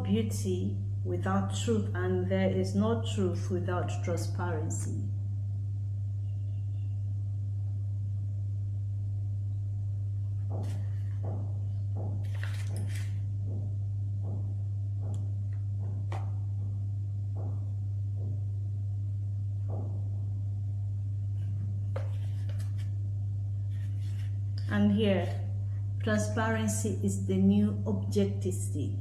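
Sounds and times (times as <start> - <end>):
low electrical hum: 0.0 - 29.0.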